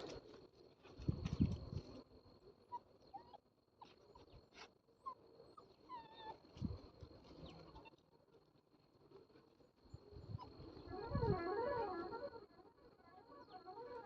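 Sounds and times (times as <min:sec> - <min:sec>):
dog whimpering: 0:05.1 - 0:06.4.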